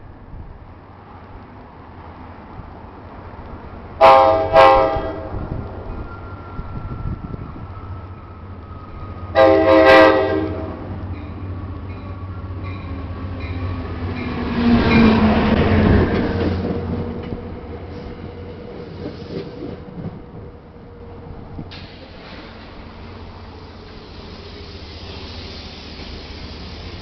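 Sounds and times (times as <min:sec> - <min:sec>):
diesel locomotive engine passing: 0:00.0 - 0:27.0
locomotive horn blast: 0:04.0 - 0:05.5, 0:09.3 - 0:10.9
train wheels clicking: 0:11.1 - 0:20.6, 0:21.6 - 0:27.0.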